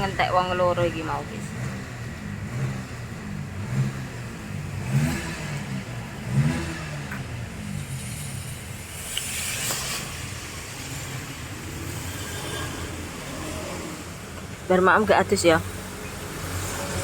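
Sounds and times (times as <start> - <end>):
engine revving: 0.0 - 17.0
vehicles passing: 0.0 - 17.0
tyres hissing on wet road: 6.4 - 14.3.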